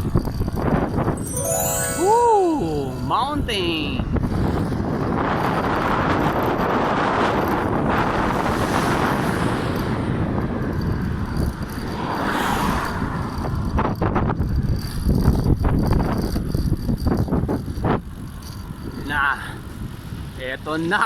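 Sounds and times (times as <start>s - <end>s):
wind noise on microphone: 0.0s - 1.2s, 3.2s - 20.4s
passing traffic: 3.0s - 21.0s.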